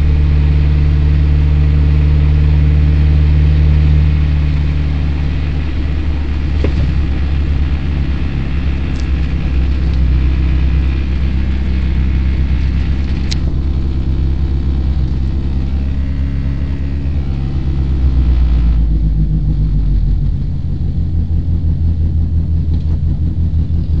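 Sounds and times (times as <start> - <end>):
car engine idling: 0.0 - 24.0
road noise: 0.0 - 24.0.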